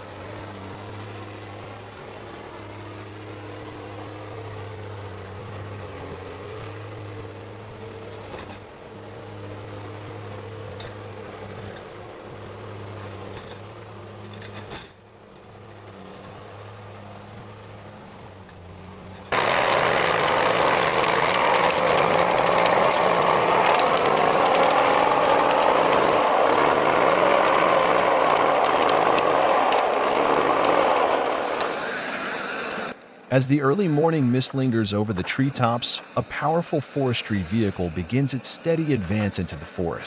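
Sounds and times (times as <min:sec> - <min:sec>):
machinery engine hum: 0:00.0 - 0:40.0
loud crackling grinding: 0:19.3 - 0:33.0.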